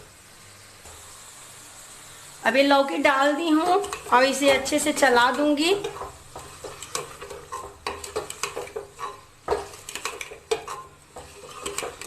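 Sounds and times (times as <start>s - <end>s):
frying sizzle: 0.0s - 12.0s
spoon scraping metal pot: 3.6s - 12.0s.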